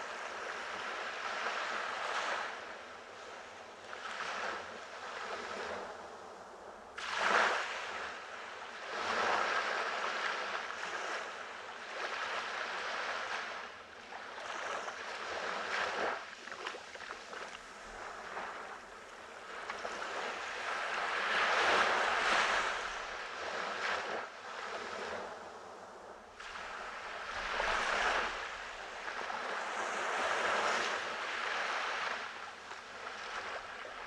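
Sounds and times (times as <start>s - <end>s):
ocean waves breaking: 7.0s - 34.0s.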